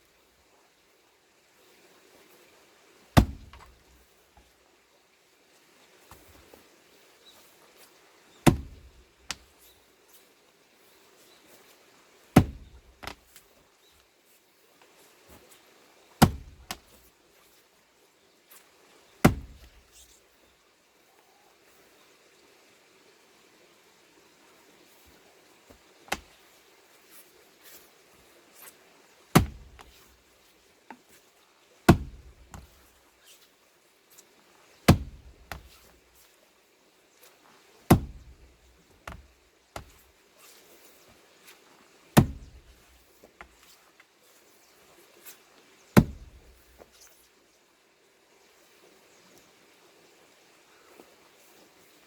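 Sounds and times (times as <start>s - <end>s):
axe striking log: 3.2s - 3.9s, 8.4s - 9.5s, 12.4s - 13.2s, 16.2s - 17.0s, 19.2s - 19.8s, 26.1s - 26.4s, 29.3s - 30.0s, 31.9s - 32.8s, 34.9s - 35.9s, 37.9s - 40.0s, 42.2s - 43.5s, 46.0s - 46.6s.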